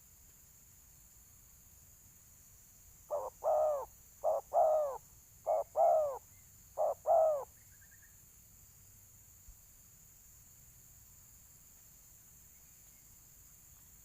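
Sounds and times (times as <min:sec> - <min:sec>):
dove cooing: 0:03.1 - 0:06.2, 0:06.8 - 0:07.5.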